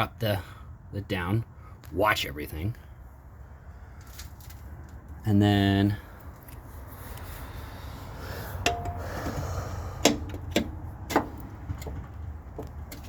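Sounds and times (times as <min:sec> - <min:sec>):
hand tools knocking on metal: 0:08.6 - 0:09.4.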